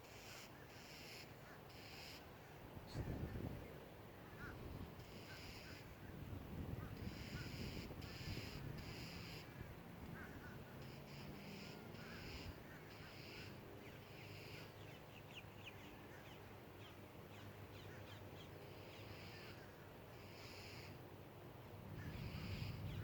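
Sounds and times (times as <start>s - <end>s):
crows cawing: 4.3s - 5.9s, 7.0s - 14.8s, 18.8s - 21.0s.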